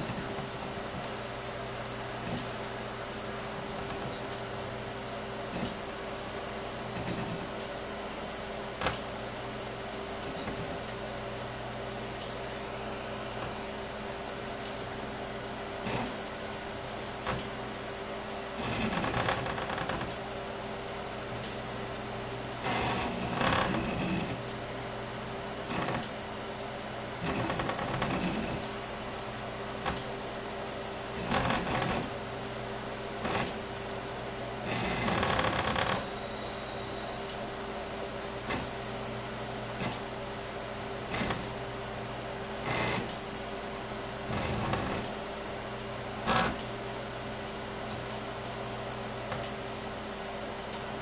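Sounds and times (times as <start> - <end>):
steady motor hum: 0.0 - 51.0
stepper motors buzzing whine: 2.1 - 4.8, 5.5 - 9.2, 10.2 - 11.1, 15.7 - 17.8, 18.5 - 20.3, 21.3 - 24.7, 25.6 - 26.2, 27.1 - 28.8, 31.0 - 32.6, 33.2 - 33.7, 34.6 - 37.4, 41.0 - 41.6, 42.6 - 43.2, 44.2 - 45.2, 46.2 - 46.7.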